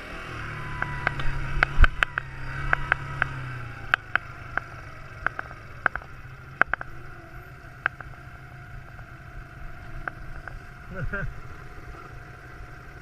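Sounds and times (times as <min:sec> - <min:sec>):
quad bike engine running: 0:00.0 - 0:13.0
sharp clicks: 0:00.8 - 0:07.0, 0:07.8 - 0:08.2.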